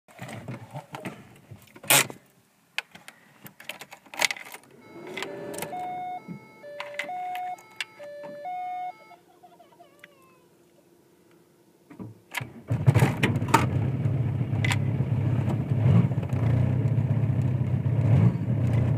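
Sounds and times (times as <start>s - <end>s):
two-note car warning chime: 4.7s - 9.3s.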